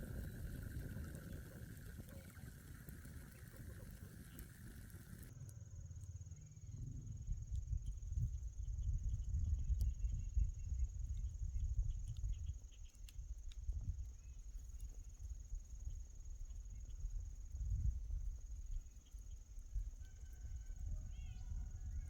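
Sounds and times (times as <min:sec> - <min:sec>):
hissing noise: 0:00.0 - 0:05.3
wind rumbling on microphone: 0:00.0 - 0:05.4, 0:06.4 - 0:22.0
faint clicks: 0:00.0 - 0:06.2
high insect trill: 0:00.1 - 0:22.0.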